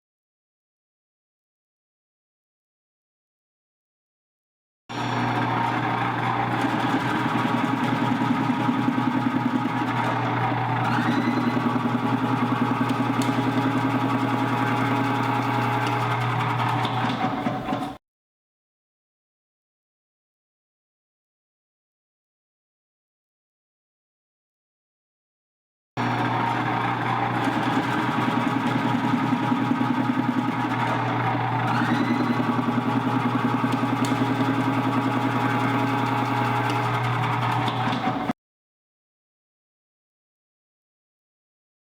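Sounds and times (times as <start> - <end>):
slicing machine motor hum: 4.9 - 18.0, 26.0 - 38.3.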